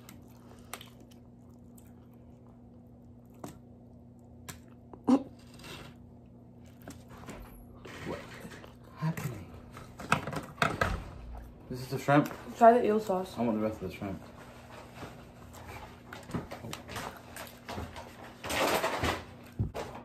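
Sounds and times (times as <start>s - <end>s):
chewing crunchy food: 0.0s - 8.9s
steady low hum: 0.0s - 20.0s.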